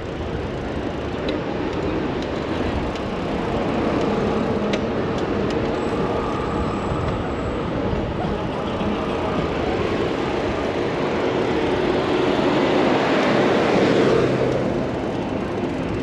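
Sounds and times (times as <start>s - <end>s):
city traffic: 0.0s - 16.0s.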